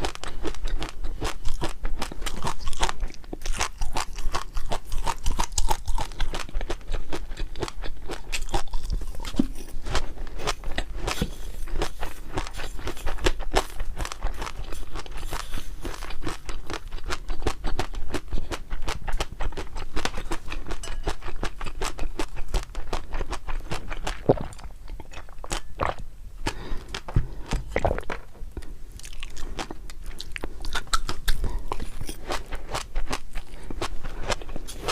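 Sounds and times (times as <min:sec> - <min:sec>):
person chewing crunchy food: 0:00.0 - 0:34.9.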